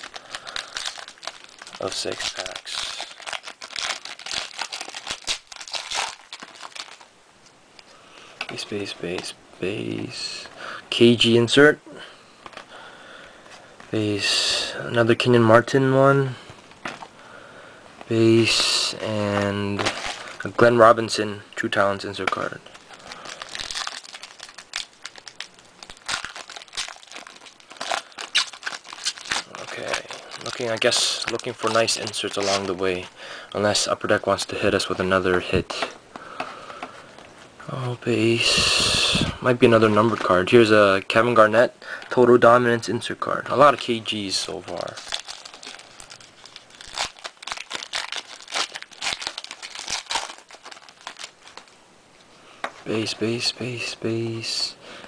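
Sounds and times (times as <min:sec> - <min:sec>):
card pack wrapper crinkling and tearing: 0:00.0 - 0:07.1, 0:18.0 - 0:20.8, 0:21.7 - 0:37.3, 0:38.4 - 0:42.5, 0:43.6 - 0:51.8.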